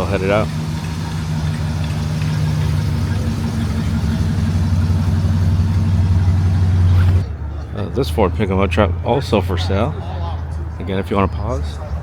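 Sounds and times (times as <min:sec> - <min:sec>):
car engine pulling away: 0:00.0 - 0:09.0.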